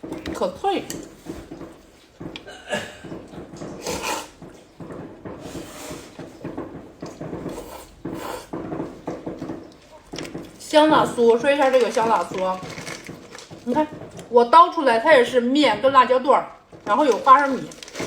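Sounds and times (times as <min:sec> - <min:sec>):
wet mouth sounds: 0:03.6 - 0:04.6, 0:07.0 - 0:08.5.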